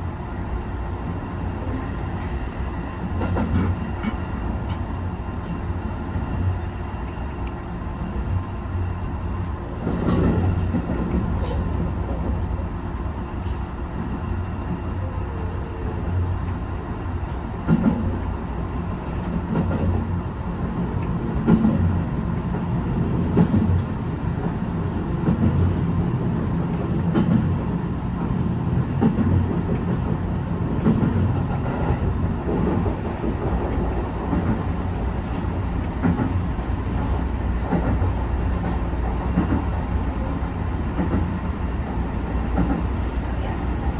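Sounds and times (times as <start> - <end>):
train rumbling along rails: 0.0 - 43.9.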